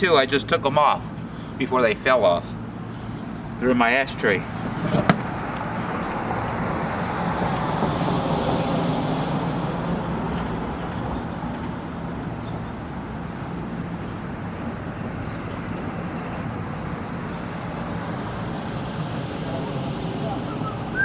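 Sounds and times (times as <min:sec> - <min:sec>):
vehicle running noise: 0:00.1 - 0:21.0.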